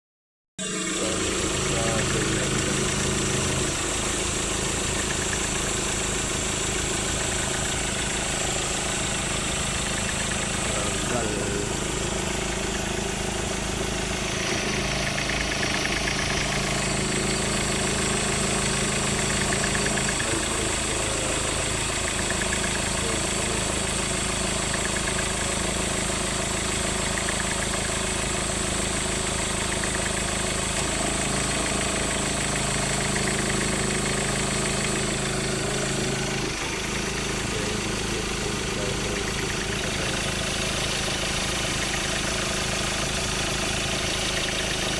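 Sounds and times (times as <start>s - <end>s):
steady high-pitched whine: 0.6s - 6.3s
car engine idling: 0.6s - 44.9s.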